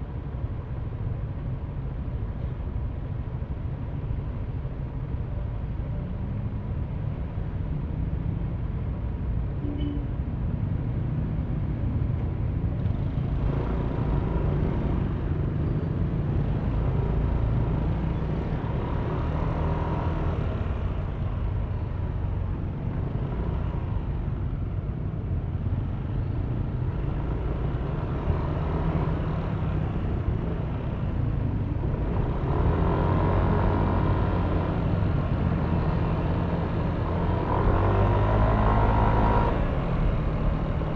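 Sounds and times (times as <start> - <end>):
road rumble: 0.0 - 40.9
wind: 0.0 - 40.9.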